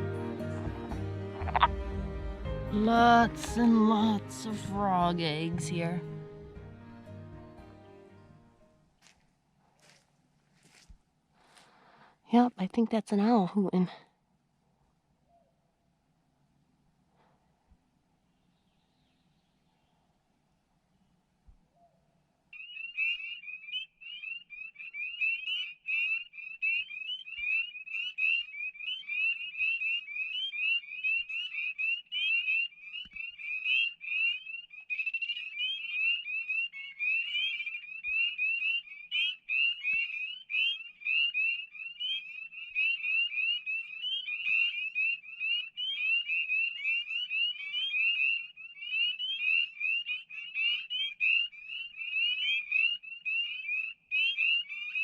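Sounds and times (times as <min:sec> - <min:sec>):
frogs peeping in chorus: 0:01.4 - 0:02.2, 0:22.5 - 0:55.0.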